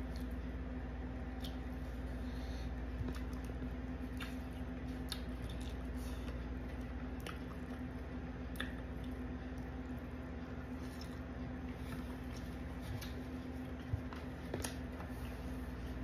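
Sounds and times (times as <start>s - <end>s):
steady low hum: 0.0s - 16.0s
chewing food: 2.8s - 16.0s.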